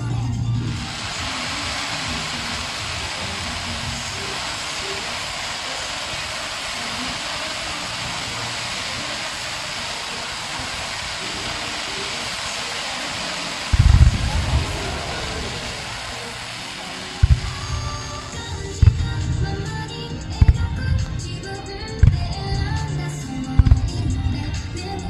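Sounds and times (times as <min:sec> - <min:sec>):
fireworks sparks hissing: 0:00.3 - 0:25.0
deep firework booms: 0:13.7 - 0:16.6, 0:17.2 - 0:22.9.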